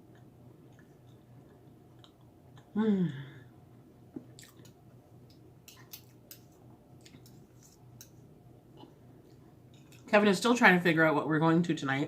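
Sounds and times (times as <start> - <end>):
wet chewing sounds: 4.2 - 10.1.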